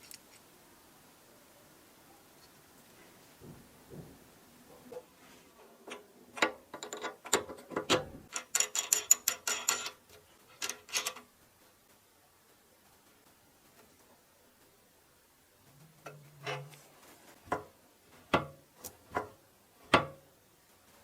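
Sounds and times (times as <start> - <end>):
metal parts clicking and clinking: 5.9 - 11.2.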